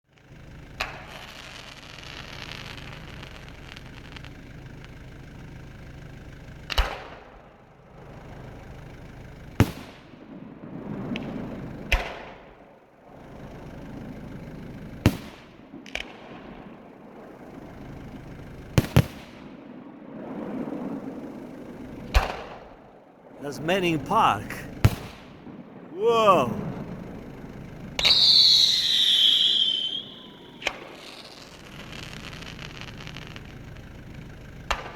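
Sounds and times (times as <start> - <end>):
fireworks bangs with echo: 23.5 - 26.6.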